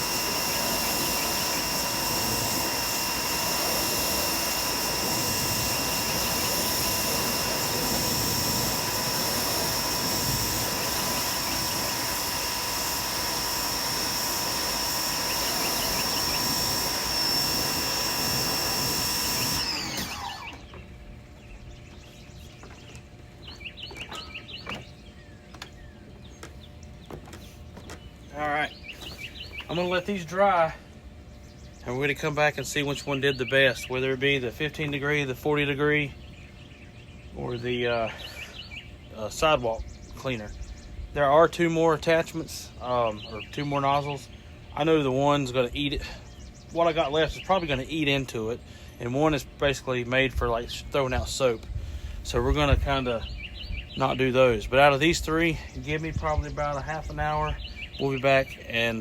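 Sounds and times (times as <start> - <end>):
pressure washer whining: 0.0 - 21.4, 26.4 - 31.2
birds chirping: 0.0 - 59.0.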